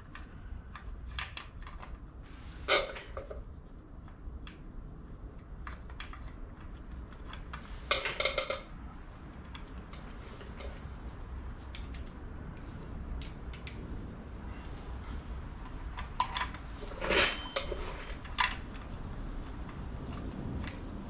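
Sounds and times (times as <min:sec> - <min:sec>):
metal tools clinking: 0:16.2 - 0:18.6.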